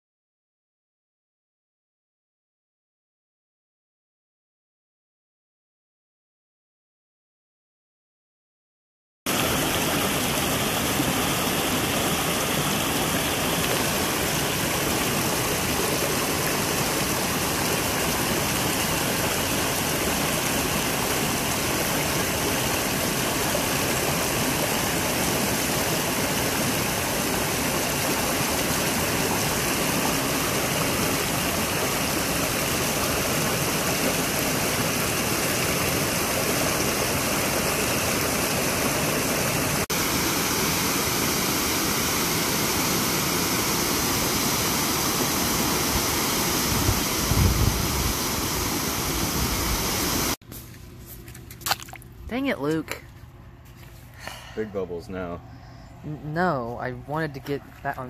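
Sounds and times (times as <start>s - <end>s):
rushing water roar: 9.3s - 50.4s.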